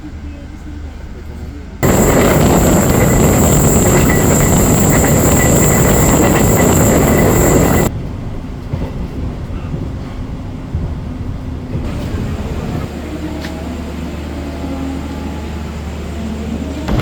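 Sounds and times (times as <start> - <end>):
train rumbling on rails: 0.0 - 17.0
steady high whine: 1.8 - 7.9.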